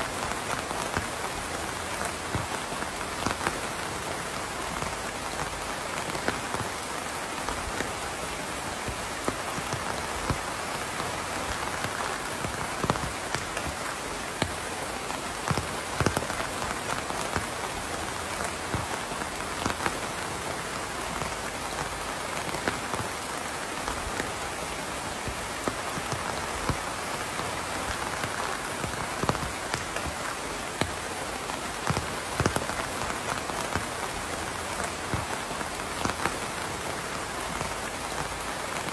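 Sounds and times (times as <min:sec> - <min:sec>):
raindrops ticking: 0:00.0 - 0:38.9
steady rain hiss: 0:00.0 - 0:38.9.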